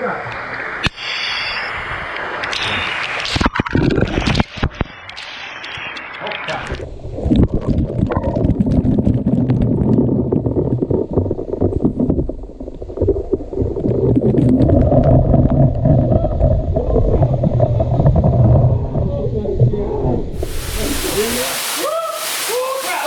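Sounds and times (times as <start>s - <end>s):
waterfall rushing onto microphone: 20.4s - 23.0s.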